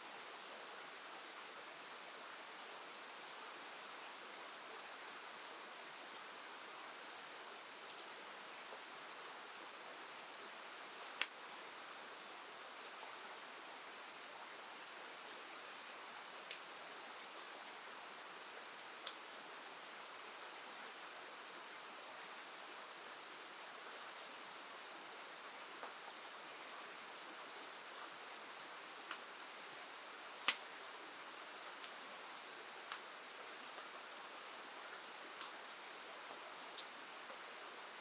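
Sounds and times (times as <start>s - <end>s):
rain hissing: 21.9s - 38.0s.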